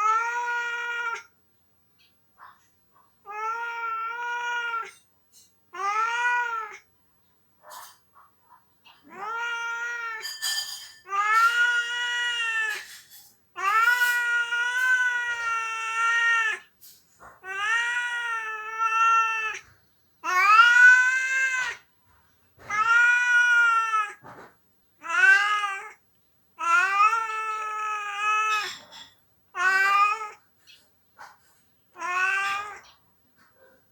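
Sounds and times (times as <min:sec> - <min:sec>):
cat meowing: 0:00.0 - 0:01.3, 0:03.2 - 0:05.0, 0:05.7 - 0:06.9, 0:08.8 - 0:13.0, 0:13.6 - 0:21.9, 0:22.6 - 0:26.0, 0:26.6 - 0:30.4, 0:31.9 - 0:33.0.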